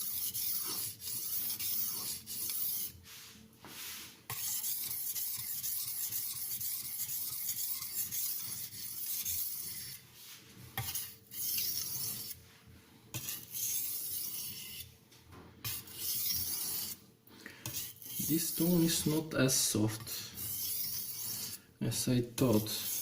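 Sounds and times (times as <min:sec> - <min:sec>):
knife scraping on sharpening stone: 0:00.0 - 0:03.0, 0:04.3 - 0:10.0, 0:10.8 - 0:12.4, 0:13.1 - 0:14.9, 0:15.6 - 0:17.0, 0:17.6 - 0:19.3, 0:19.9 - 0:21.6, 0:22.5 - 0:23.0.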